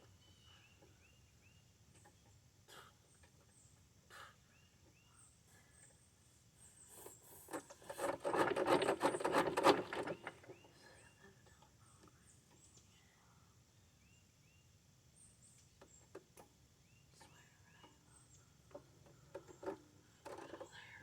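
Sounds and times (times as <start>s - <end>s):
rasping clicking hand tool scrape: 7.4s - 10.5s, 19.4s - 20.6s.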